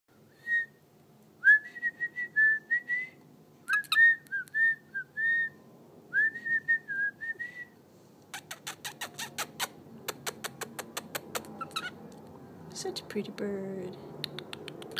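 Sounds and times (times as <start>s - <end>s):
cockatiel whistling a tune: 3.7s - 5.6s.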